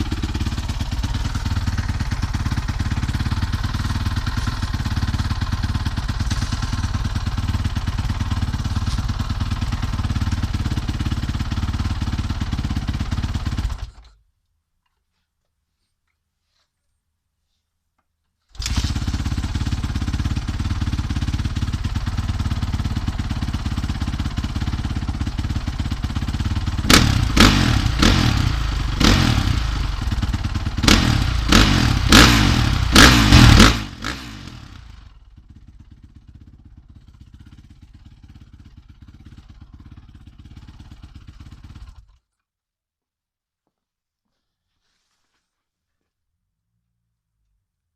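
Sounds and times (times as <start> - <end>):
motorcycle engine revving: 0.0 - 14.0, 18.6 - 42.2.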